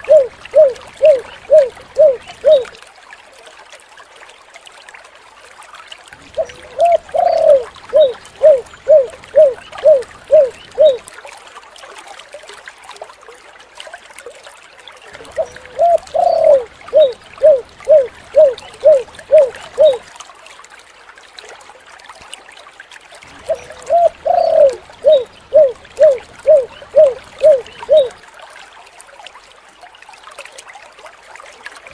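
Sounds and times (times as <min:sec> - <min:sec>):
dove cooing: 0:00.0 - 0:02.8, 0:06.3 - 0:11.1, 0:15.3 - 0:20.1, 0:23.4 - 0:28.2.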